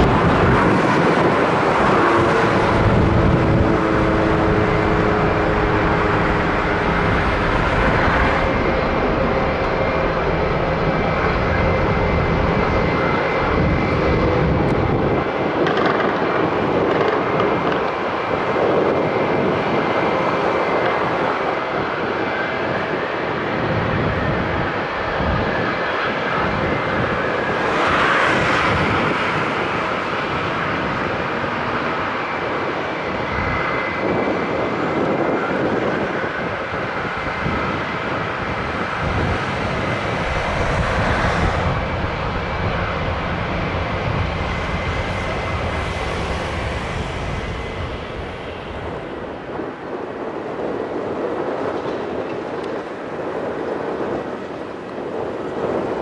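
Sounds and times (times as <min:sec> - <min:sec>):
thin engine whine: 0:00.0 - 0:15.9
jet engines roaring: 0:00.0 - 0:56.0.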